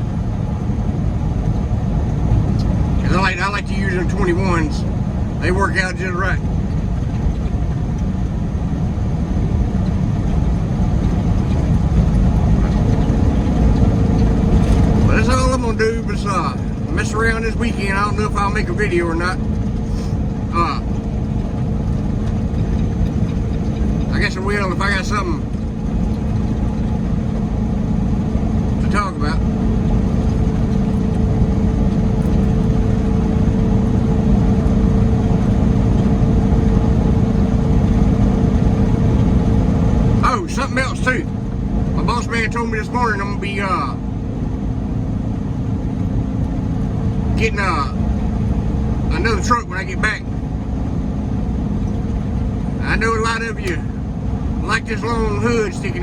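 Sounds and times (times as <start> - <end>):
constant hum: 0.0 - 56.0
diesel truck engine drone: 0.0 - 56.0
road noise: 0.0 - 56.0.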